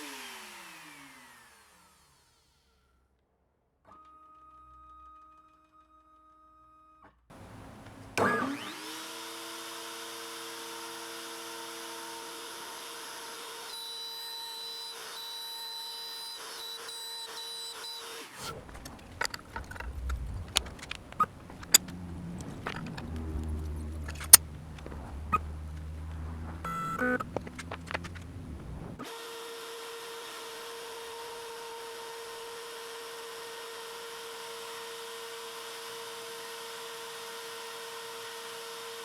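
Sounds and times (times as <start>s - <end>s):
router spindle whine: 0.0s - 2.4s, 7.4s - 39.0s
sharp clicks and knocks: 18.4s - 29.0s.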